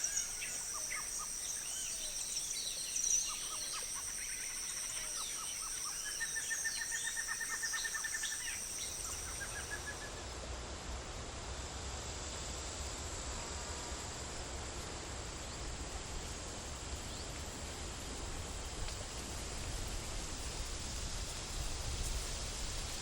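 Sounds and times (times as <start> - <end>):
bird chirps: 0.0 - 10.2
outdoor hiss: 0.0 - 23.0.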